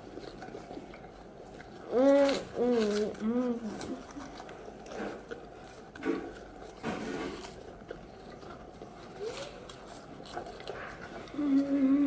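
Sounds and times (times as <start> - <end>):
crunchy snacks being chewed: 0.0 - 12.0
person humming: 1.9 - 4.0, 11.4 - 12.0.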